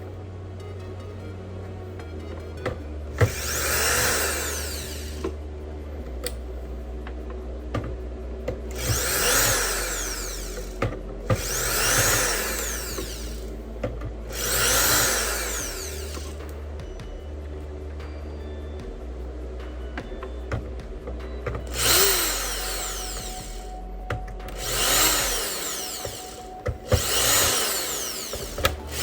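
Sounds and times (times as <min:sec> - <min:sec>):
small power tool bursts: 0:03.2 - 0:05.3, 0:08.8 - 0:13.5, 0:14.3 - 0:16.4, 0:21.7 - 0:23.7, 0:24.5 - 0:29.0.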